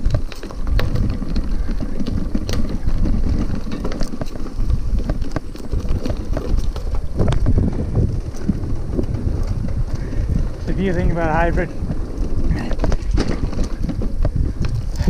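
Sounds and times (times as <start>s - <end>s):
bike clicks and rattles: 0.0s - 15.0s
tyres rumbling on dirt trail: 0.0s - 15.0s
wind on microphone: 0.0s - 15.0s.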